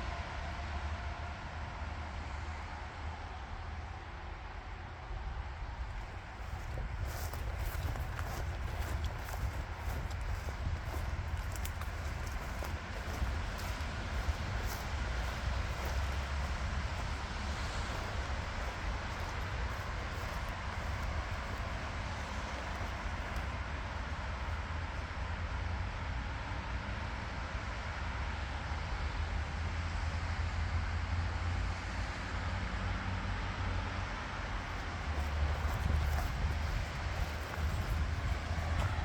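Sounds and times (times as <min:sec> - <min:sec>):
wind rumble on microphone: 0:05.0 - 0:31.4, 0:34.0 - 0:39.0
floodwater rushing: 0:05.8 - 0:24.8, 0:34.5 - 0:39.0.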